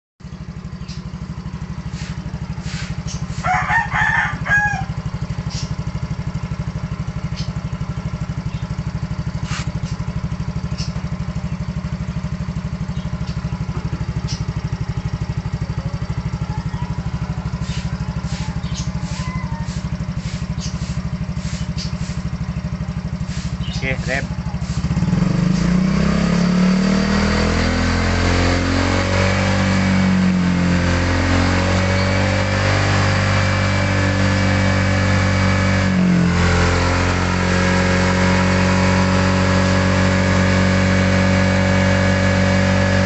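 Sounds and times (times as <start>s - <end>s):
scooter engine idling: 0.2s - 27.0s, 29.3s - 43.0s
rooster crowing: 3.4s - 5.2s, 16.5s - 19.9s.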